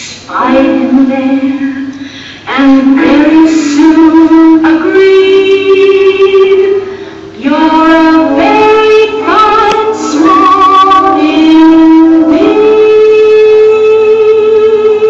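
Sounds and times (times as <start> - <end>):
high voice singing slow melody: 0.0 - 15.0.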